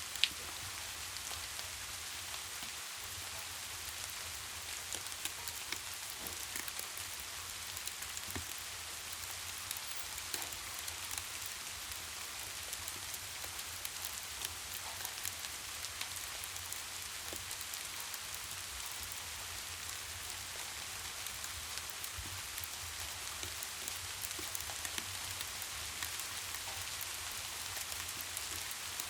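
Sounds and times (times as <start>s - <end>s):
sharp ticks of raindrops: 0.0s - 29.0s
steady rain hiss: 0.0s - 29.0s.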